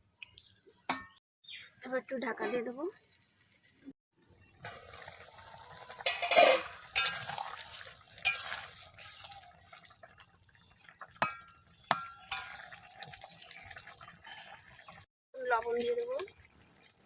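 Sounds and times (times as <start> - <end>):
metal pot and lid clinking: 0.9 - 1.2, 5.8 - 9.3, 11.2 - 13.2.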